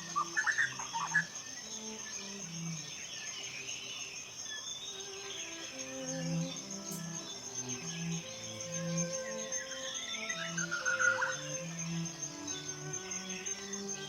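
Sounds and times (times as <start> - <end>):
bird chirps: 0.0 - 14.0
high insect chirring: 0.0 - 14.0
ambient music with low notes: 5.2 - 14.0.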